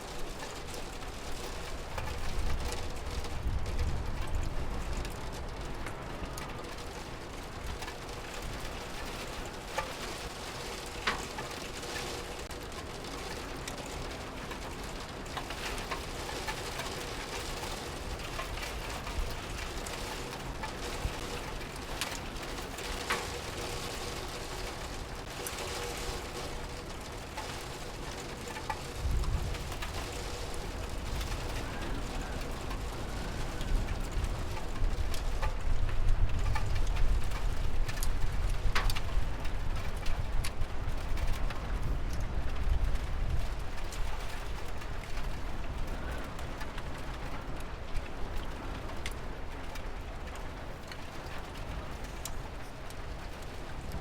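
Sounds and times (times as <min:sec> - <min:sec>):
sharp drips and ticks: 0:00.0 - 0:54.0
steady rain: 0:00.0 - 0:54.0.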